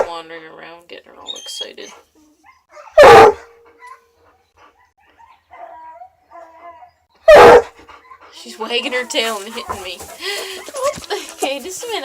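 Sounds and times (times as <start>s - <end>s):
dog barking: 2.5s - 4.1s, 7.3s - 7.8s.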